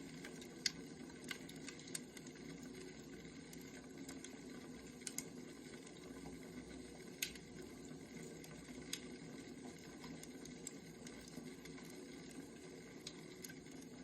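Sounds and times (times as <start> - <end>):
wood fire burning: 0.0 - 14.0
fire crackling pops: 0.1 - 2.3, 3.5 - 5.4, 7.0 - 9.2.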